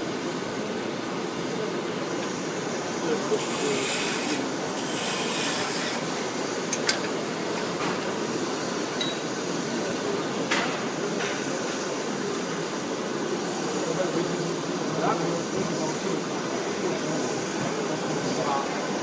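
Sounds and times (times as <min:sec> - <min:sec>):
tool rasping against spinning wood: 0:03.4 - 0:06.0.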